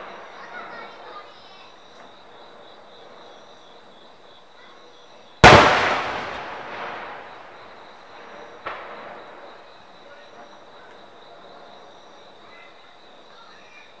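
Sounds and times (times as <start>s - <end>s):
firework shell boom: 5.4s - 7.4s.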